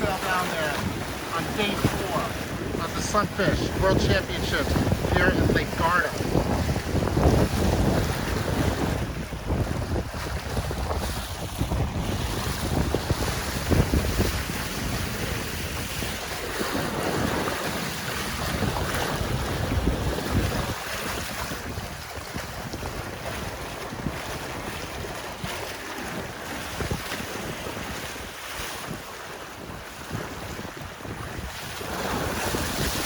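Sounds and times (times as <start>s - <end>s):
water lapping against boat: 0.0s - 33.0s
wind buffeting microphone: 0.0s - 33.0s.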